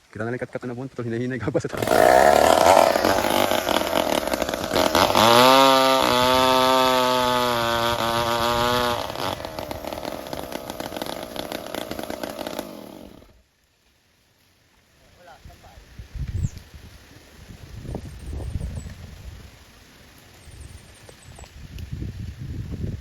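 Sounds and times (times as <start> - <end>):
chainsaw cutting wood: 1.7 - 13.4.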